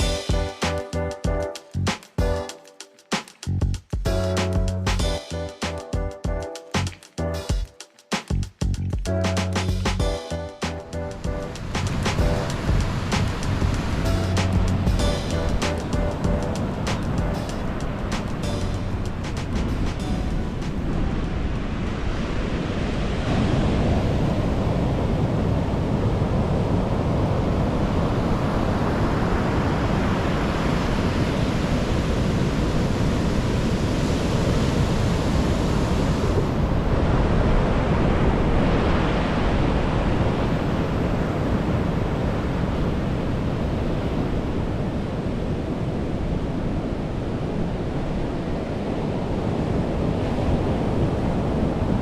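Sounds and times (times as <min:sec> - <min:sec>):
surf breaking on a beach: 0:11.2 - 0:52.0.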